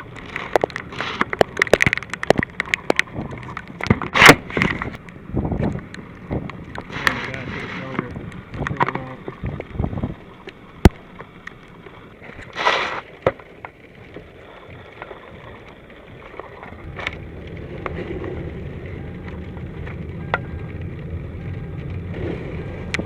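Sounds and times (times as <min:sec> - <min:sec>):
wind buffeting microphone: 0:01.4 - 0:12.5.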